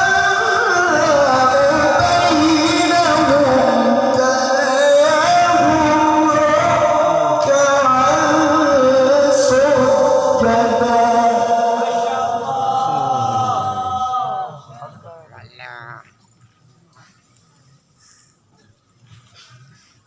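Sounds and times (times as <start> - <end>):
man reciting melodically: 0.0 - 15.3.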